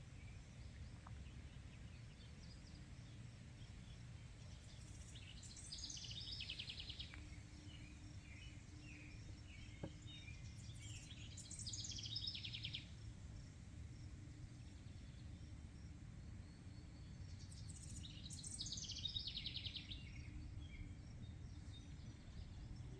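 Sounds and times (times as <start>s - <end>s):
songbird trill: 0.0s - 22.9s.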